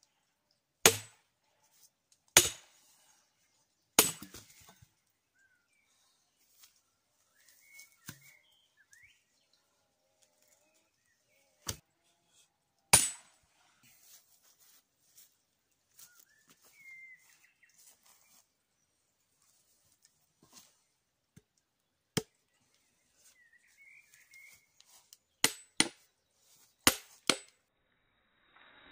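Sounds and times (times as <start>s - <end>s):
sharp strikes on firewood: 0.8s - 1.2s, 2.3s - 2.8s, 4.0s - 4.8s, 11.6s - 11.8s, 12.9s - 13.4s, 25.4s - 26.1s, 26.8s - 27.6s
faint bird chirps: 4.5s - 11.6s, 15.9s - 19.5s, 22.5s - 25.2s.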